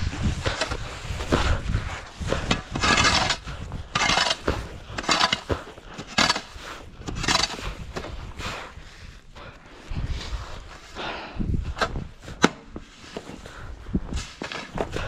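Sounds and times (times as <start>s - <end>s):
snow crunching and scraping: 0.0s - 15.0s.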